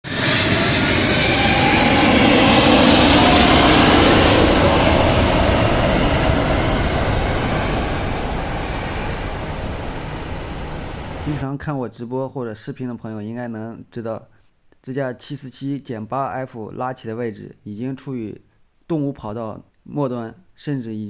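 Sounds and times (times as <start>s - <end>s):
jet engine roar: 0.0s - 11.4s.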